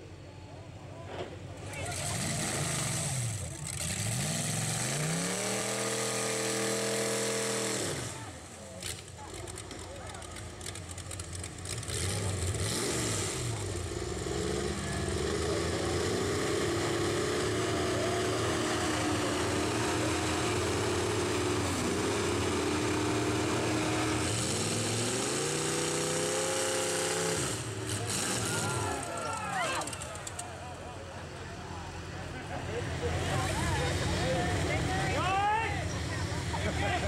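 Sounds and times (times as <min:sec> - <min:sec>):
truck engine revving under load: 0:01.2 - 0:35.2.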